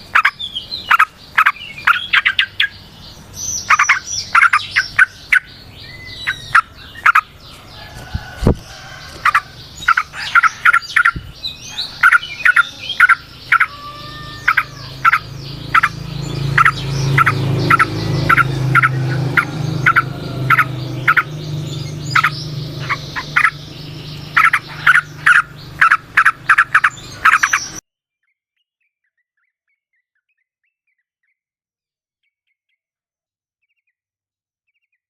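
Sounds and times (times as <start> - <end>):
bulbuls chattering: 0.0 - 27.8
low hum: 4.4 - 27.8.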